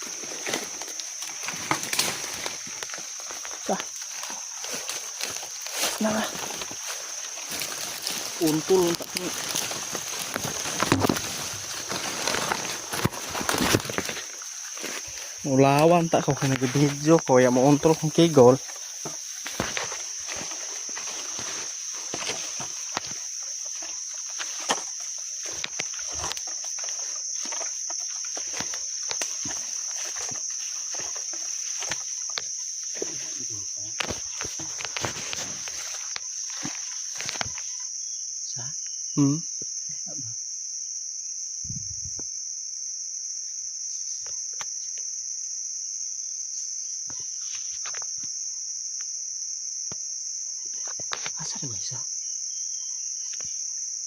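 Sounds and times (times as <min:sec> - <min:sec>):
insects droning: 0:00.0 - 0:54.0
sharp clicks and crunches: 0:07.5 - 0:14.9, 0:33.9 - 0:37.6.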